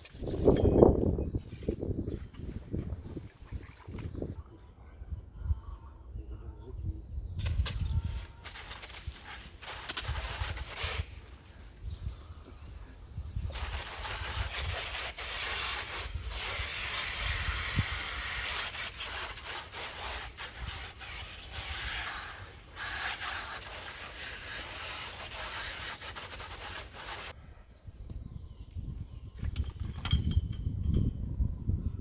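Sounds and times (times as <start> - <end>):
sandpaper rasping on a panel: 8.5 - 11.2, 13.4 - 27.4.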